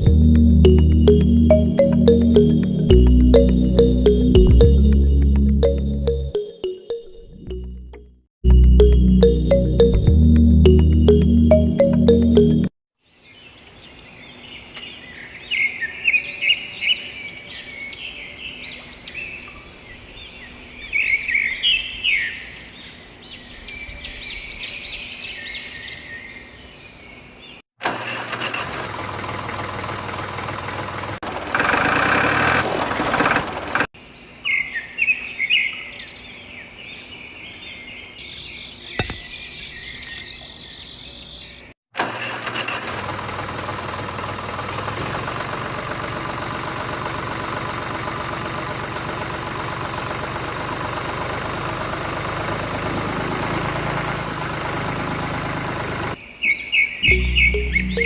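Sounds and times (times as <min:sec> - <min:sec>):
small birds chirping: 0:34.4 - 0:41.8, 0:56.2 - 0:58.0.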